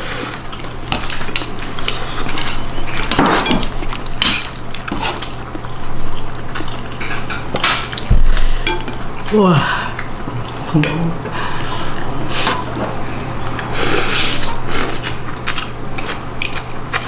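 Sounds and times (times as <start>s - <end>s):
steady low hum: 0.0s - 17.0s
cutlery clinking against dishes: 8.6s - 9.0s, 10.8s - 11.2s.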